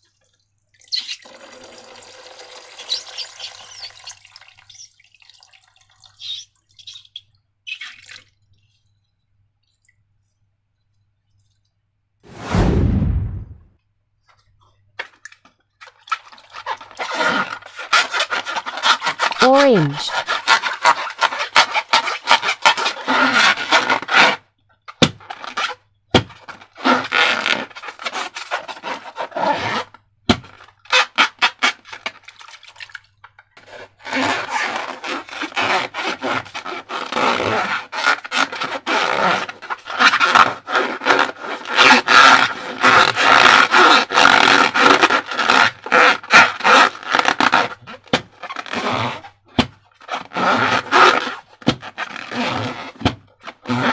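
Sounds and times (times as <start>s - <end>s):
balloon squeaking and scraping: 2.8s - 4.9s, 16.4s - 24.4s, 25.0s - 32.1s, 33.6s - 49.4s, 50.0s - 53.9s.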